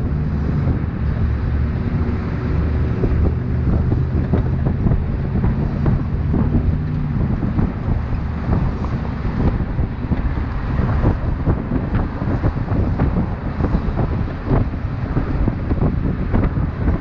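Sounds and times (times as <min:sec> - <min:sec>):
vehicle engine running: 0:00.0 - 0:17.0
wind buffeting microphone: 0:00.0 - 0:17.0.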